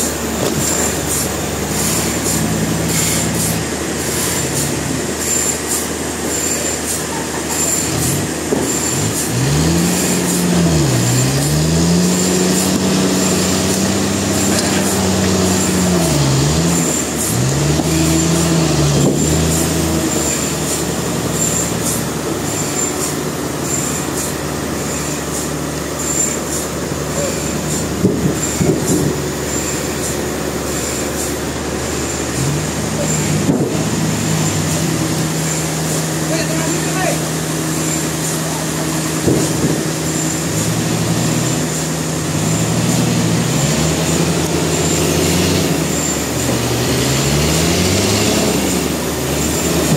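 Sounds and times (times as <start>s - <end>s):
saw whine: 0.0s - 49.9s
sawmill engine: 0.0s - 49.9s.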